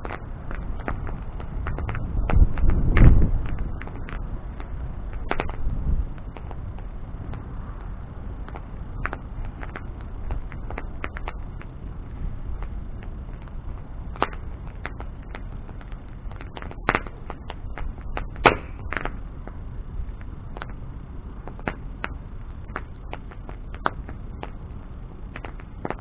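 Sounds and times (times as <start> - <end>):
bonfire flame rumble: 0.0 - 26.0
burning wood crackling and popping: 0.0 - 26.0.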